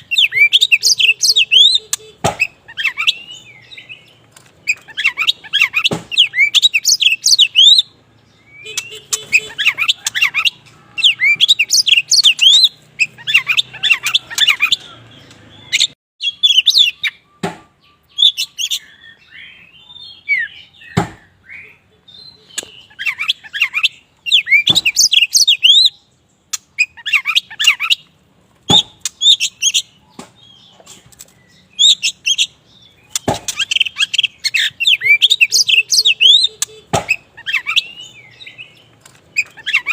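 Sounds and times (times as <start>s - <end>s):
bird singing: 0.0s - 39.9s
sharp bird clicks: 8.6s - 13.6s, 26.5s - 39.9s.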